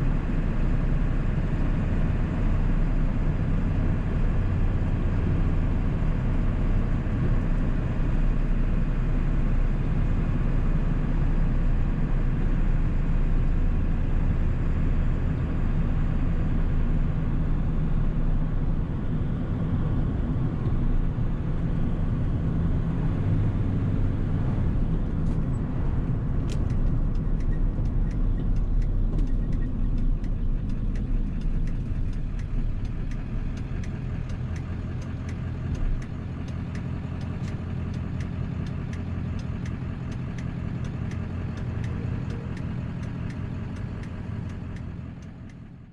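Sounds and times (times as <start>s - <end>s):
diesel truck engine droning: 0.0s - 45.9s
faint regular ticking: 26.4s - 45.7s.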